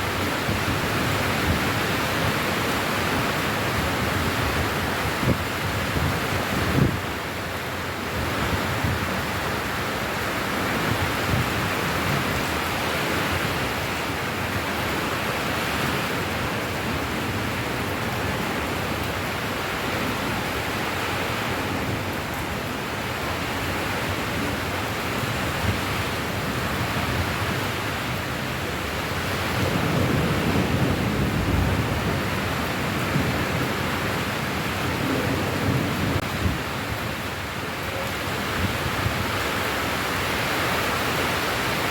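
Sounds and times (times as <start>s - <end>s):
steady rain hiss: 0.0s - 41.9s.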